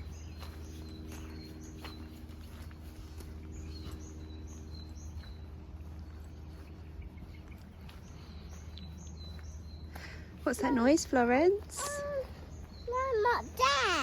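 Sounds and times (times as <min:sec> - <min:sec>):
low background rumble: 0:00.0 - 0:14.0
small birds chirping: 0:00.0 - 0:14.0.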